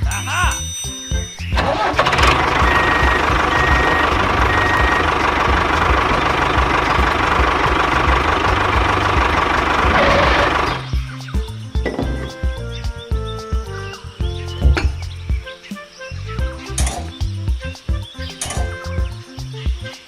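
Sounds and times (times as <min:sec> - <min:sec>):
small engine chugging: 0:01.6 - 0:11.0
short high beeps: 0:02.6 - 0:05.1.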